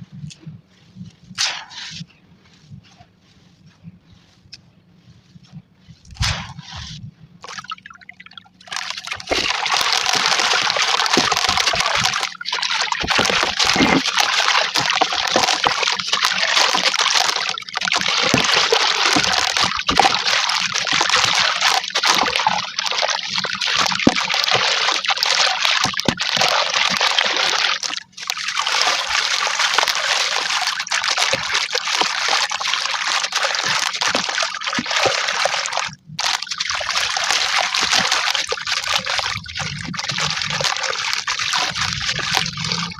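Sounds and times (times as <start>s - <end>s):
water trickling and sloshing: 5.0s - 42.9s
gritty crackling of crumbling charcoal: 8.6s - 22.4s.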